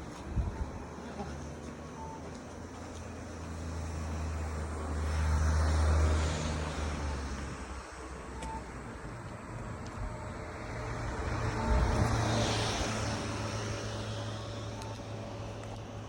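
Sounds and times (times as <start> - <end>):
vehicle passing: 3.2 - 8.2, 10.4 - 15.4.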